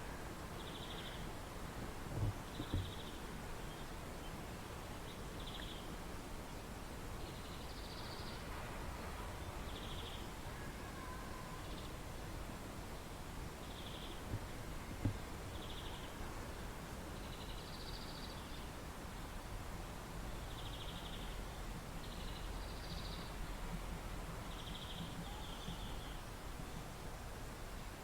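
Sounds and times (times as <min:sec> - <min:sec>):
light knocks: 0:02.2 - 0:03.0.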